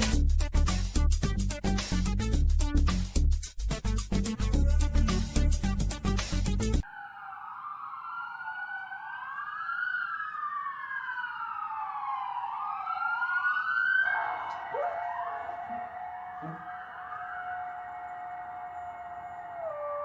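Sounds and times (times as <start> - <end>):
sirens wailing: 6.8 - 20.0
steady held siren tone: 6.8 - 20.0.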